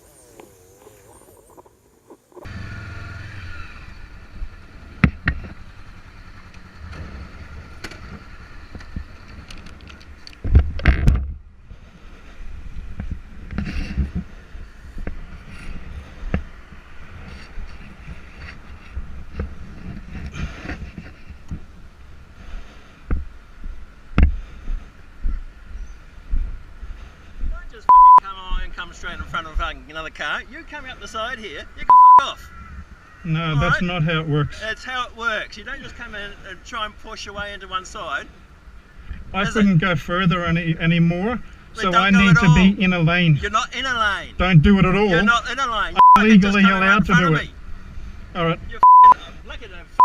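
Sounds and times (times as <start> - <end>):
motorcycle engine and road rumble: 0.0 - 50.0
wind noise on microphone: 6.9 - 27.5.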